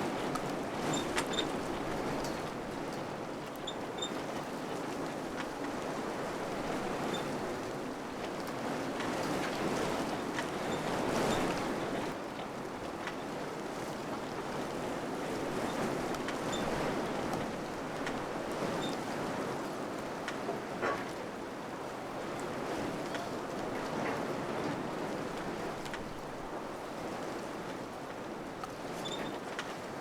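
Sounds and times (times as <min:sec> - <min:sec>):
wind blowing in gusts: 0:00.0 - 0:12.2.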